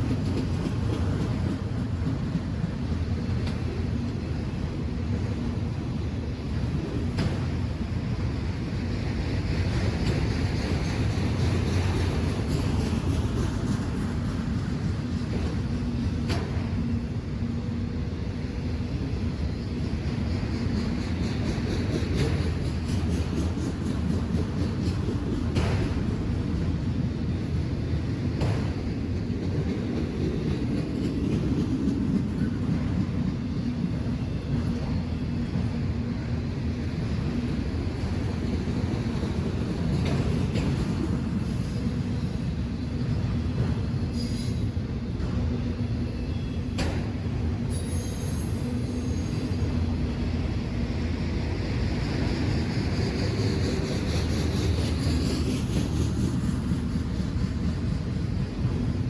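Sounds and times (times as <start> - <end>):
train rumbling by: 0.0 - 59.0.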